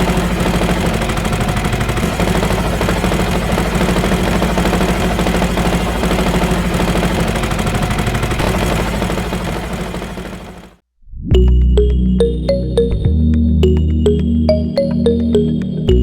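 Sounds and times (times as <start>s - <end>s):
small tractor motor running: 0.0s - 10.8s.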